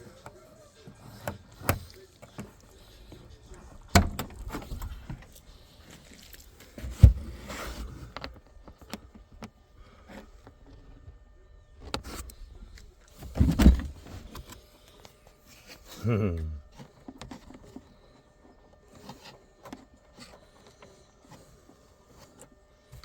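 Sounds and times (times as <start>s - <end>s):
light rustling and scraping: 0.0s - 11.2s
dull thumps and knocks: 3.9s - 5.3s, 6.8s - 8.3s, 13.2s - 14.4s.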